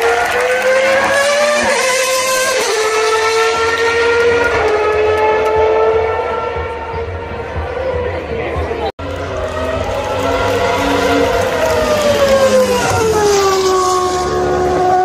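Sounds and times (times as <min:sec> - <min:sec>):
racing car engine screaming: 0:09.1 - 0:15.0.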